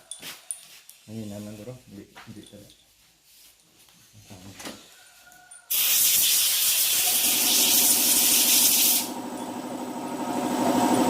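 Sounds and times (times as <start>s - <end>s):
loud steady hiss: 5.7s - 9.1s.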